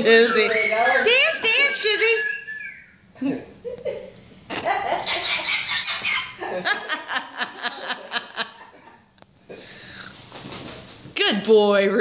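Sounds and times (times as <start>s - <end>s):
parrot squawking and chattering: 4.9s - 6.4s.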